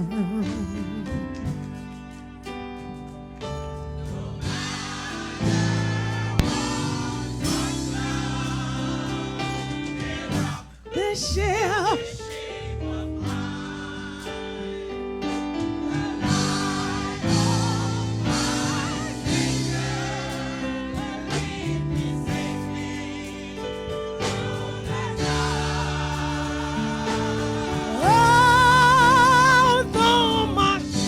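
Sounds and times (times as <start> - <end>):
gospel singing: 0.0 - 31.0.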